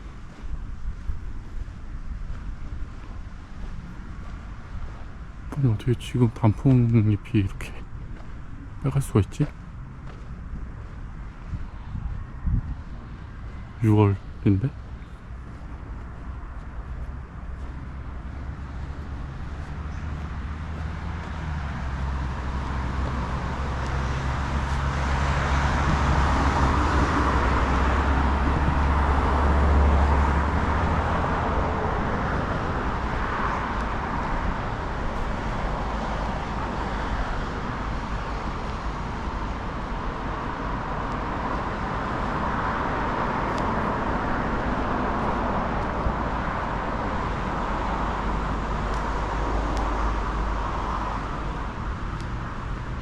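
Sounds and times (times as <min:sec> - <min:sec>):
engine hum: 0:00.0 - 0:53.0
traffic hiss: 0:05.6 - 0:07.9, 0:12.9 - 0:30.2.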